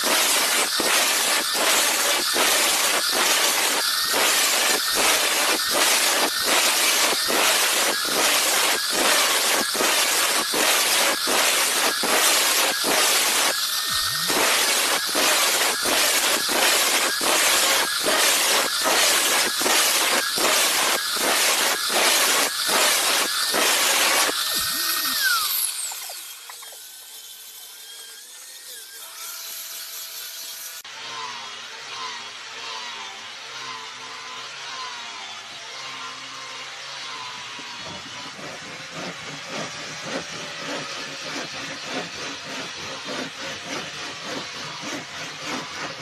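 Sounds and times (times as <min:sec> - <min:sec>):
hand tool rasping strokes: 0:00.0 - 0:46.0.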